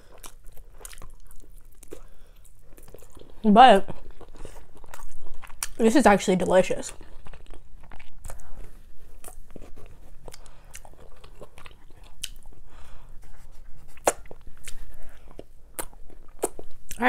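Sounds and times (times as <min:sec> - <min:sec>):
chewing and biting: 0:00.0 - 0:05.8, 0:06.9 - 0:17.0
mouth clicks and smacks: 0:13.9 - 0:14.9.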